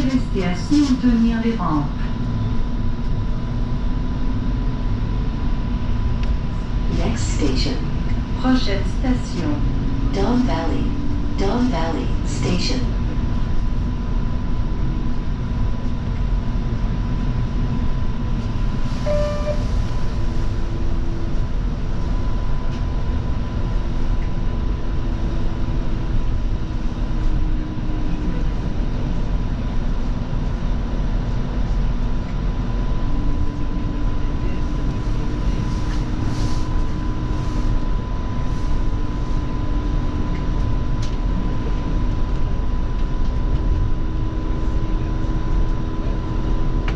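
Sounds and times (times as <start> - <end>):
short beep: 19.0 - 19.7.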